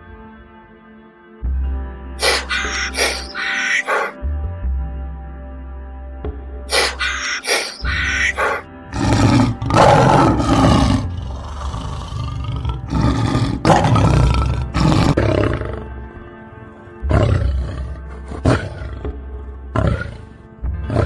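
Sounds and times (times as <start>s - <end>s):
background music: 0.0s - 21.0s
big cat roaring: 6.7s - 16.1s, 17.0s - 21.0s.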